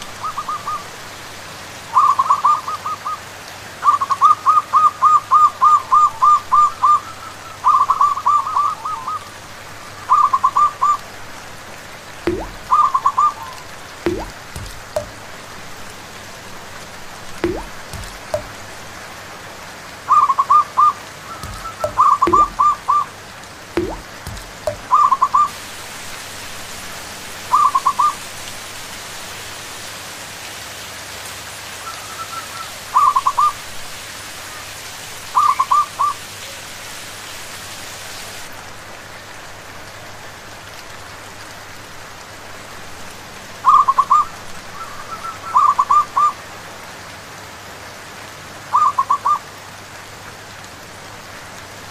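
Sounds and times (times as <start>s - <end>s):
rain hissing: 0.0s - 48.8s
low thuds: 12.3s - 12.8s, 14.1s - 15.3s, 17.4s - 18.8s, 21.4s - 22.9s, 23.8s - 24.9s
doves cooing: 12.4s - 15.1s, 20.1s - 23.1s.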